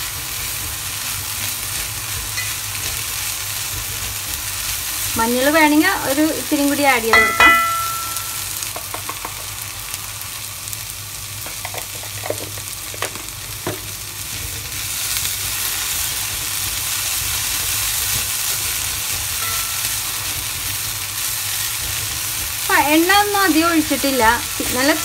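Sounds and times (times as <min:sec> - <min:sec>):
vegetables sizzling in oil: 0:00.0 - 0:25.0
spatula tapping and scraping a pan: 0:07.2 - 0:09.5, 0:11.4 - 0:13.9, 0:19.4 - 0:20.3.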